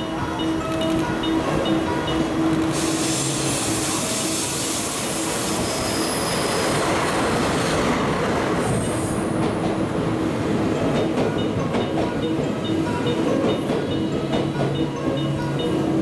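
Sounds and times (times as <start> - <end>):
diesel locomotive passing: 0.0 - 16.0
wheel squeal: 2.8 - 6.9.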